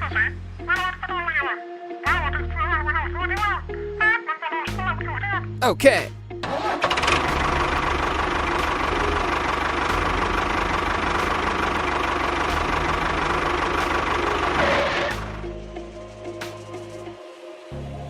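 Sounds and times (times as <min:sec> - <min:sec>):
small engine chugging: 0:06.6 - 0:15.2.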